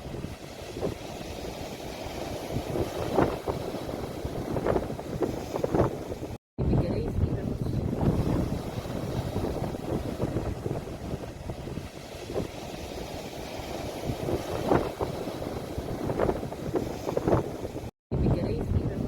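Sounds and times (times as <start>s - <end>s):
sea waves washing on shore: 0.0s - 6.4s, 7.2s - 17.9s
wind rumbling on microphone: 0.0s - 19.0s
loud wave splashes: 7.7s - 17.9s.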